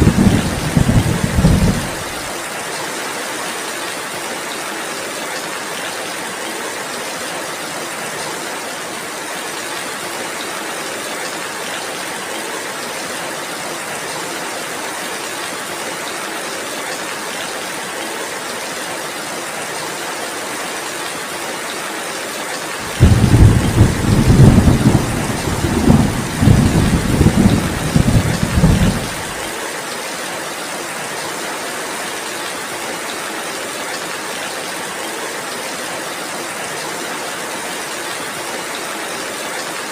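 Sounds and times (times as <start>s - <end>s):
thunder rumbling: 0.0s - 2.3s, 22.8s - 29.4s
heavy rain: 0.0s - 39.9s.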